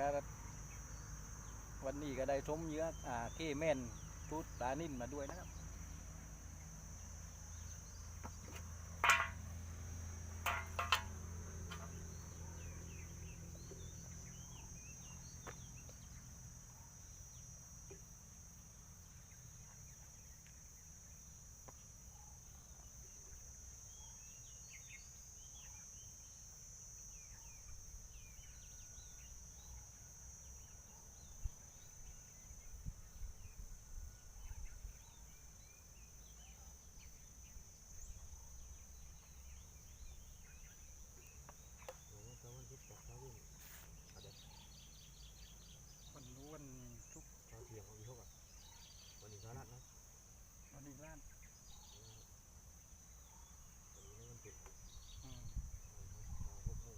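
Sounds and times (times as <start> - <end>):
high-pitched insect drone: 0.0 - 53.2, 53.9 - 56.9
bird chirps: 10.5 - 17.5, 37.9 - 49.8, 50.7 - 52.4.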